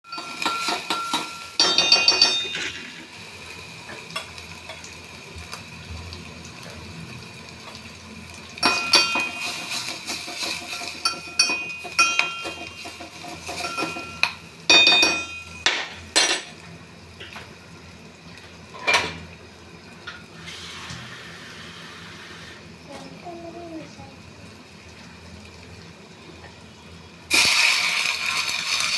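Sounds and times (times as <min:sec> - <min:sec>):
dishes and utensils clinking: 0:00.1 - 0:03.2, 0:08.6 - 0:16.6, 0:18.7 - 0:19.2.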